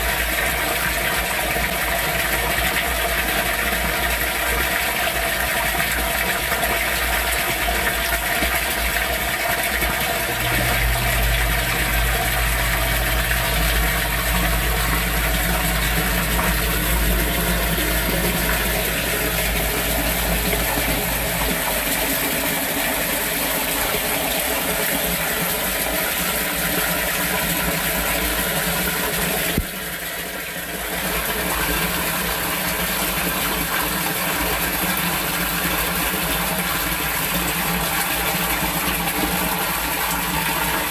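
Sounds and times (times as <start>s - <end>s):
torrential rain pouring: 0.0s - 40.9s
low steady hum: 9.8s - 29.6s.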